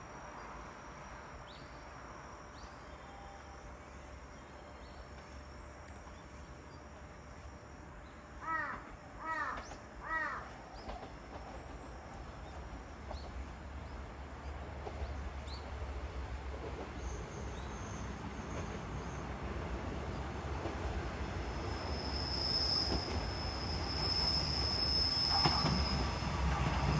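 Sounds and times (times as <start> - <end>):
bird calling: 8.4 - 11.0.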